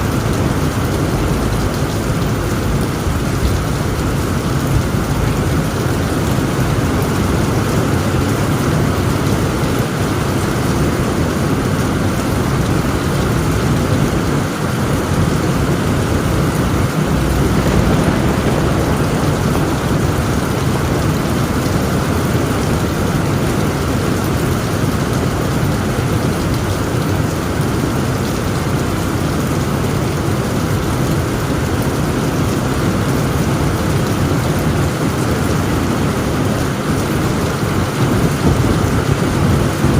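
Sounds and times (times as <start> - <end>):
thunder rumbling: 0.0 - 24.2, 37.8 - 39.9
heavy rain on a tent roof: 0.0 - 39.9.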